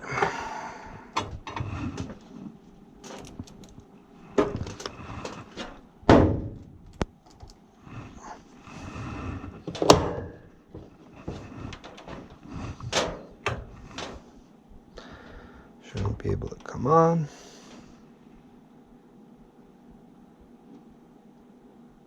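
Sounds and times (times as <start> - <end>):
tools knocking and clicking: 3.0 - 3.8.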